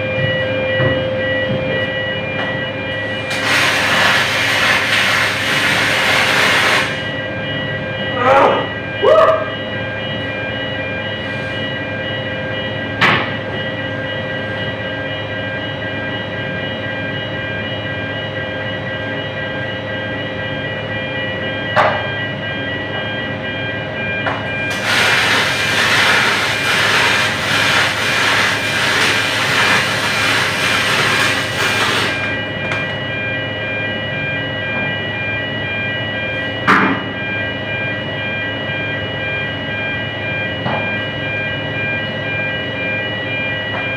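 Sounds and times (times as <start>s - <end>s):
machine hum with whining tones: 0.0s - 43.9s
welding arc hissing and crackling: 3.2s - 7.1s, 24.7s - 32.4s.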